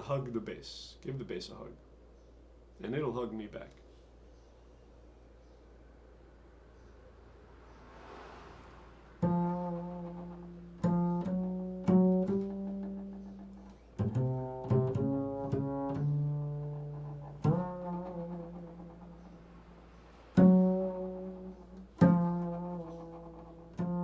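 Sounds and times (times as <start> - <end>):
double bass plucked pizzicato: 9.2 - 24.0.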